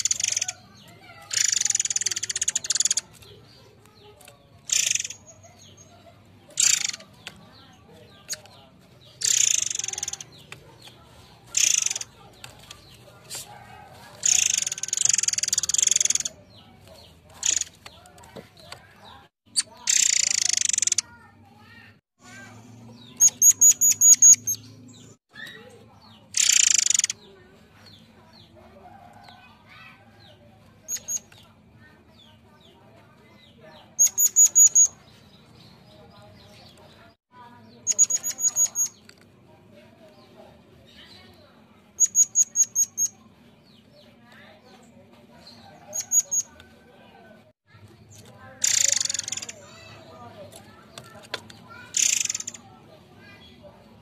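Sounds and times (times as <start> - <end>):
bird harsh rattling call: 0.0 - 3.1, 4.6 - 5.9, 6.5 - 7.2, 9.2 - 10.5, 11.5 - 12.9, 14.1 - 16.4, 19.6 - 21.1, 26.3 - 27.2, 48.6 - 49.9, 51.7 - 52.6
faint bird chirps: 0.0 - 39.2, 47.7 - 53.8.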